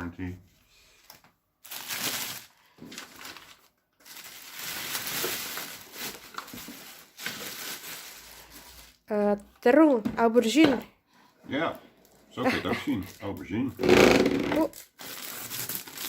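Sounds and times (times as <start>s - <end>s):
packaging crinkling: 1.6s - 9.0s, 14.6s - 16.0s.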